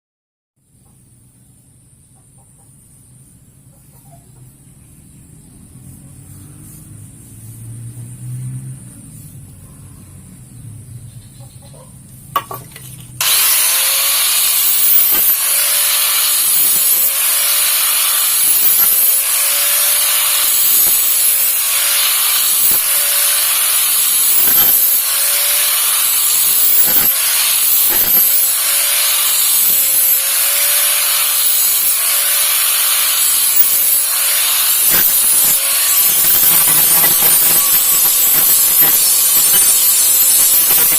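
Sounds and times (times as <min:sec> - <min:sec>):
abrasive scraping on blade: 0:12.4 - 0:40.9.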